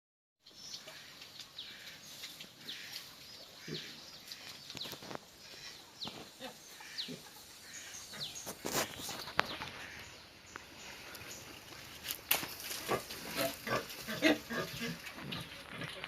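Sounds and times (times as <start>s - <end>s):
faint low animal sounds: 0.8s - 11.5s.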